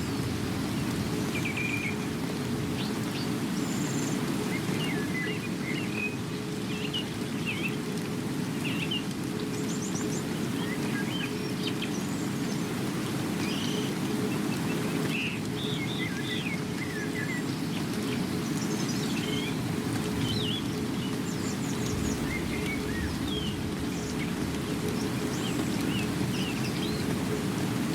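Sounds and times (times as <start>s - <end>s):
low rushing background noise: 0.0s - 27.9s
small birds chirping: 13.4s - 27.9s.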